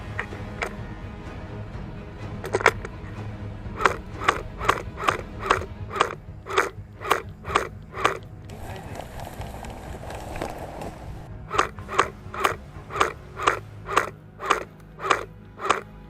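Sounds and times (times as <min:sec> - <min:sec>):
rustling brushing sound: 0:03.8 - 0:15.8
footsteps crunching on dry ground: 0:08.2 - 0:13.3.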